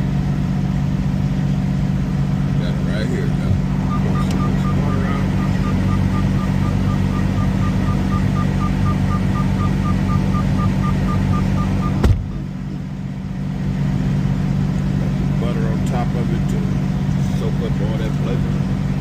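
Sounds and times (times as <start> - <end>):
truck engine idling: 0.0 - 19.0
rapid electronic warning beep: 3.8 - 12.1.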